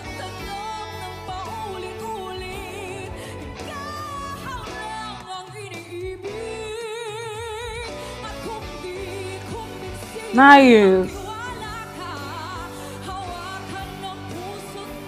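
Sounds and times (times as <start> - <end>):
woman singing pop ballad: 10.4 - 11.1.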